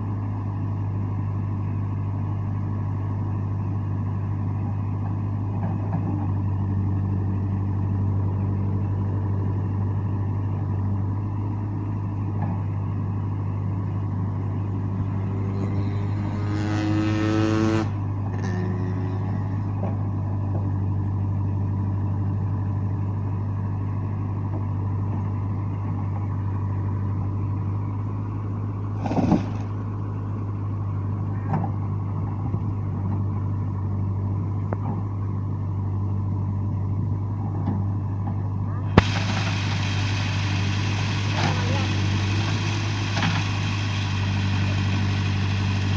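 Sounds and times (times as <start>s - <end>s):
diesel engine running and revving: 0.0s - 45.9s
sharp crack: 39.0s - 41.8s.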